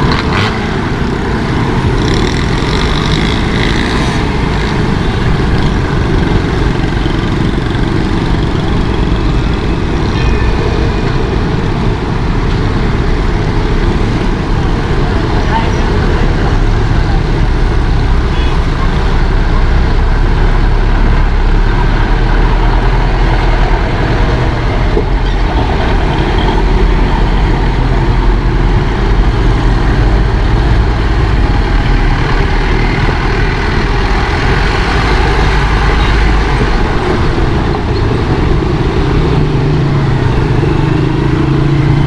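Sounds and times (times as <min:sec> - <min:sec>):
vehicle engine running: 0:00.0 - 0:22.0
road and traffic noise: 0:00.0 - 0:42.0.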